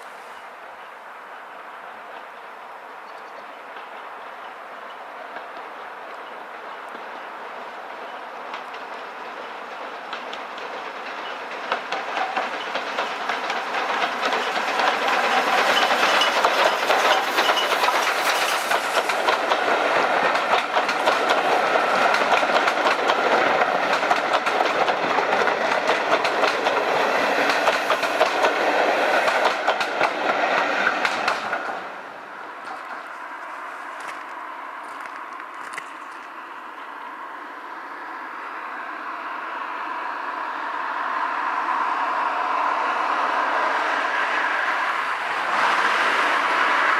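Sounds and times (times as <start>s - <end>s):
train wheels clattering over rail joints: 7.9s - 34.3s.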